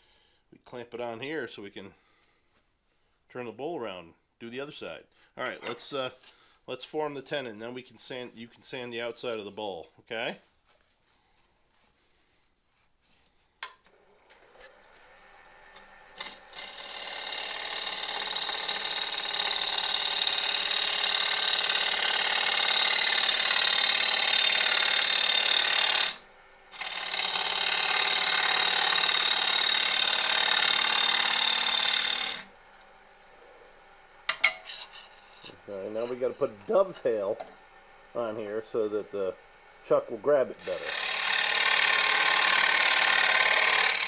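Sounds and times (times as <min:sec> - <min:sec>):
lathe whining: 0:14.4 - 0:32.5, 0:35.0 - 0:44.0
gouge cutting spinning wood: 0:16.2 - 0:32.5, 0:40.6 - 0:44.0.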